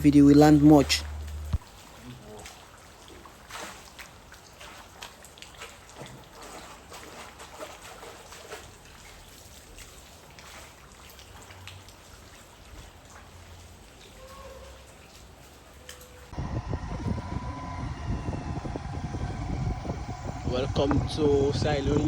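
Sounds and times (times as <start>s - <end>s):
drips ticking: 0.0s - 1.6s
rain water trickling: 0.0s - 6.9s, 8.0s - 22.0s.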